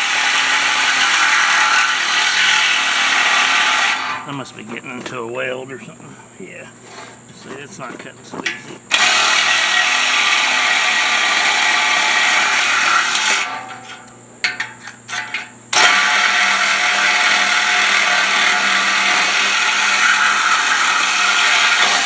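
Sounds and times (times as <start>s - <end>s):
power tool cutting metal pipe: 0.0s - 4.3s, 8.4s - 14.0s, 15.1s - 22.0s.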